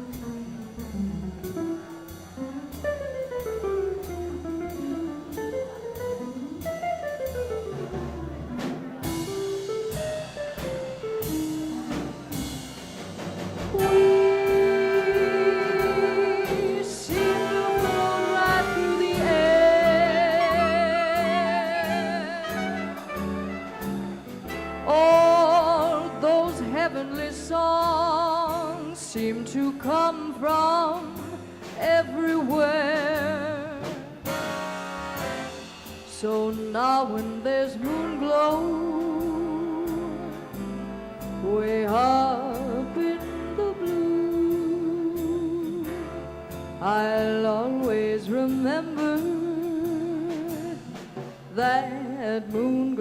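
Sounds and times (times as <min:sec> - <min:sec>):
drums keeping time: 0:00.0 - 0:53.0
swing jazz band playing: 0:00.0 - 0:53.0
upright bass: 0:00.0 - 0:53.0
solo melody with vibrato: 0:13.8 - 0:24.1.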